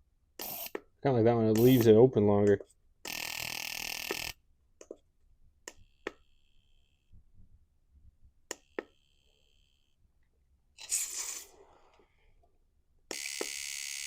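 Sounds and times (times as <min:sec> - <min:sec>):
sharp clicks: 0:08.5 - 0:09.0.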